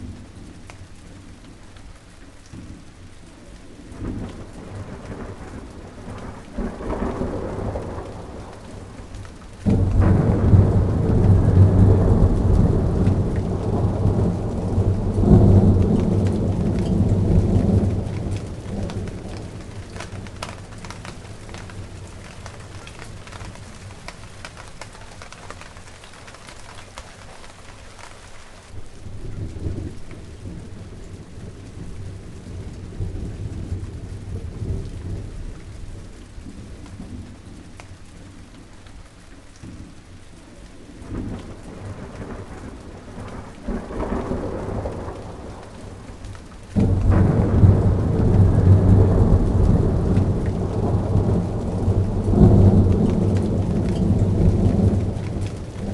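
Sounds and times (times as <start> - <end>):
steady rain falling: 0.0 - 55.9
thunder rolling: 3.9 - 27.2, 41.0 - 55.9.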